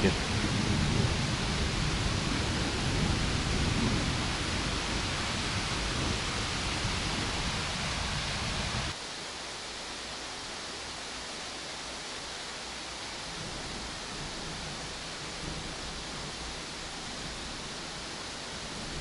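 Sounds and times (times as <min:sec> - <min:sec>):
thunder rumbling: 0:00.0 - 0:09.0
heavy rain hissing: 0:00.0 - 0:19.0.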